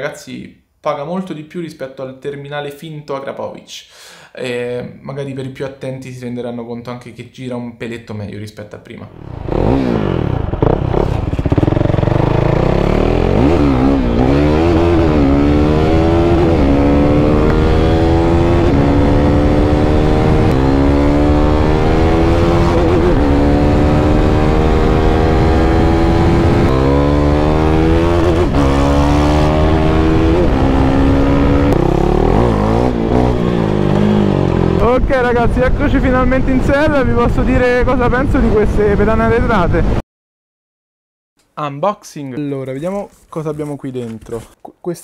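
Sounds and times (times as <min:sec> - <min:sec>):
motorcycle engine accelerating: 0:09.1 - 0:36.6.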